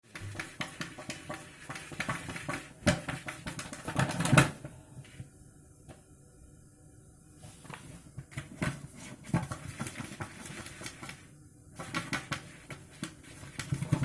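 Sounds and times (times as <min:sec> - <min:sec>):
cat scratching in a bucket: 0:00.0 - 0:04.4, 0:08.3 - 0:14.0.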